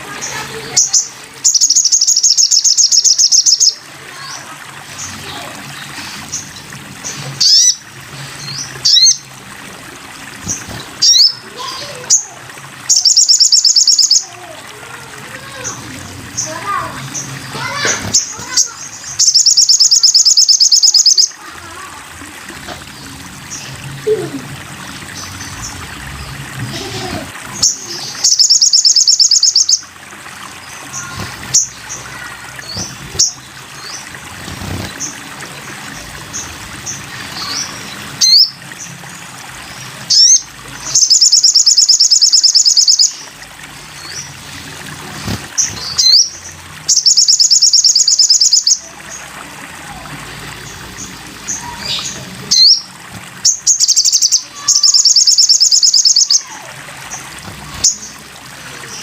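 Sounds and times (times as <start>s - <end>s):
bird singing trills: 0.2s - 4.4s, 6.3s - 7.8s, 8.4s - 9.3s, 10.5s - 12.3s, 12.9s - 14.4s, 15.5s - 21.5s, 27.6s - 29.9s, 36.3s - 38.9s, 40.1s - 43.3s, 45.6s - 49.2s, 50.6s - 57.2s
bird chips: 12.9s - 14.3s, 53.5s - 56.5s.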